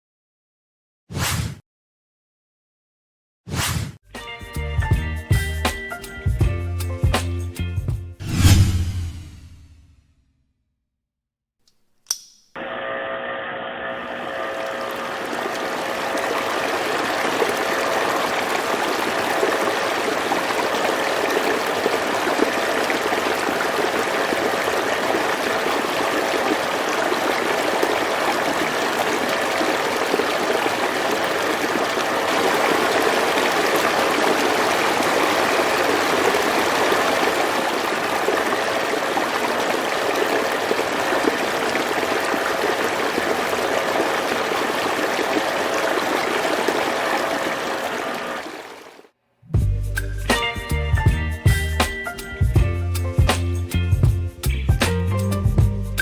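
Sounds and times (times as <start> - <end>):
water running: 14.0 - 49.1.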